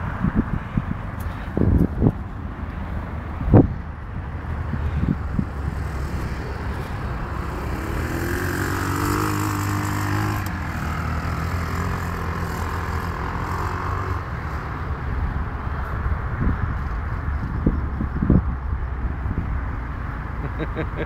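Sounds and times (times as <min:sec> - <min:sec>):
atv engine revving: 0:05.0 - 0:14.6.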